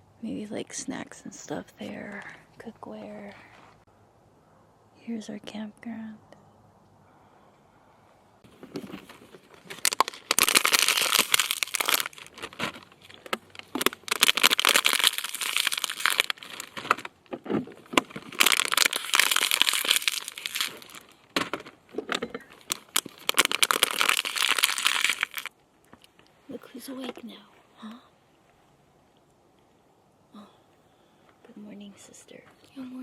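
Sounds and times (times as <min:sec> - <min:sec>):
plastic bags crinkling: 0:08.5 - 0:25.5.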